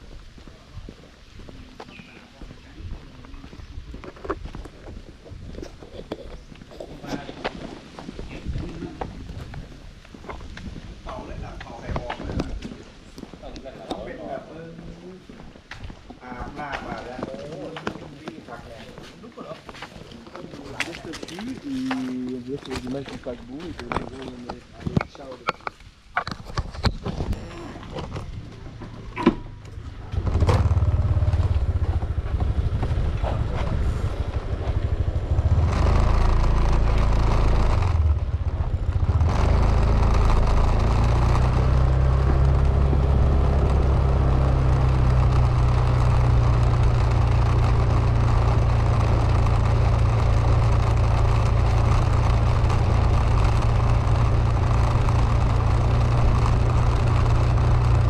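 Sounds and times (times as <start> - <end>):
vehicle engine starting and running: 26.8 - 58.0.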